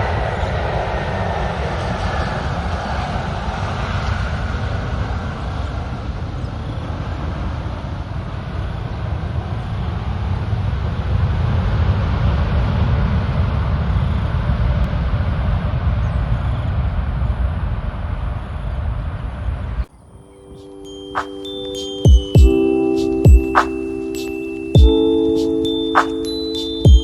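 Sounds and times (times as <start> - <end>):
jet airliner rumble: 0.0 - 19.5.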